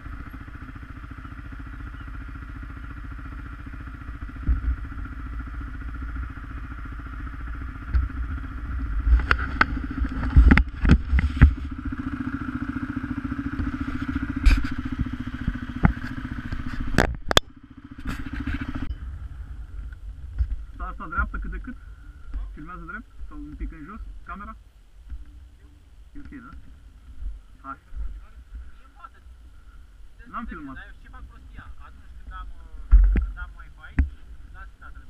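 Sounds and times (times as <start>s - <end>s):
atv engine running: 0.0s - 35.0s
sharp knocks and clatter: 9.1s - 11.7s, 13.6s - 18.9s, 32.9s - 34.2s.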